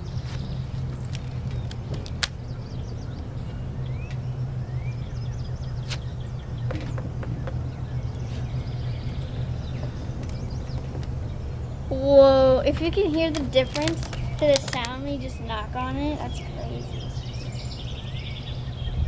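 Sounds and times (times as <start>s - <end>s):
low rumble: 0.0s - 19.0s
rubber bands snapping: 13.3s - 15.0s.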